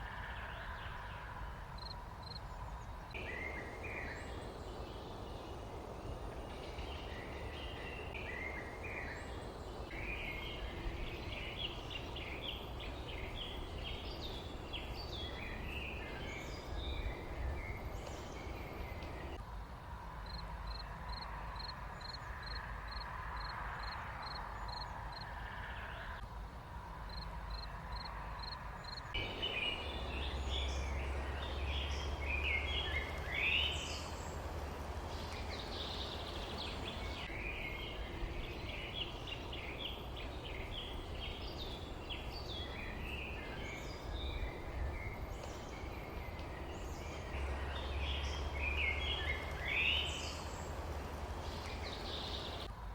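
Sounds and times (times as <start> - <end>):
birds chirping and twittering: 0.0 - 19.4, 27.1 - 52.7
low background rumble: 26.7 - 52.9.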